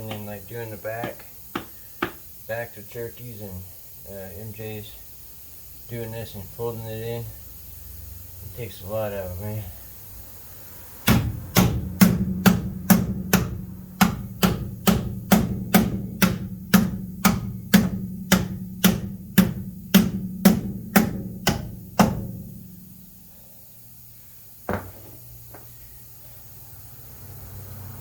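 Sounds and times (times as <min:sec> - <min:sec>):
hammer striking sheet metal: 0:11.0 - 0:22.7.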